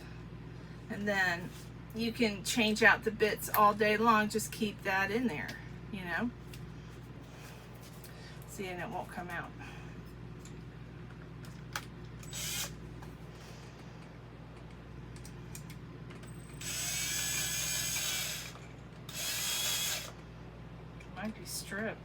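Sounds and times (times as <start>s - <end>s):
power drill driving screw: 12.2s - 12.8s, 16.3s - 20.2s.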